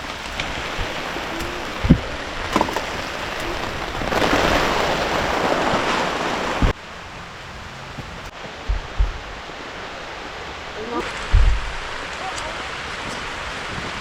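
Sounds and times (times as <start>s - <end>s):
dull thumps: 0.0s - 6.8s, 8.0s - 9.5s, 11.0s - 12.1s
heavy rain pouring: 0.0s - 14.0s.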